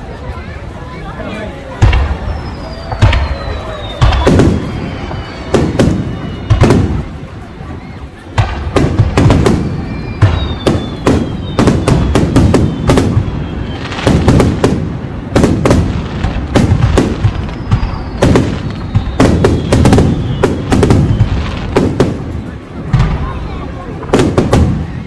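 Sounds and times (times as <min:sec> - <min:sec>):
firework bangs and crackle: 0:00.0 - 0:25.0
faint falling whistles: 0:02.0 - 0:08.0, 0:08.8 - 0:14.5, 0:17.0 - 0:21.7.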